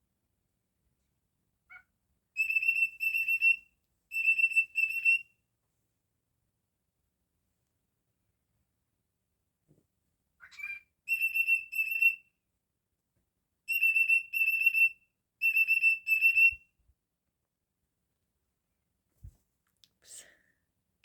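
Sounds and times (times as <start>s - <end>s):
cockatiel whistling: 2.4s - 5.2s, 10.4s - 12.2s, 13.7s - 16.6s.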